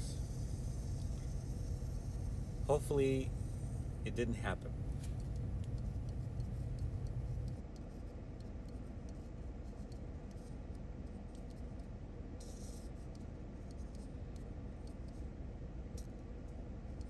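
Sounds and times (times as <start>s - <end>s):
low rumble: 0.0s - 7.6s.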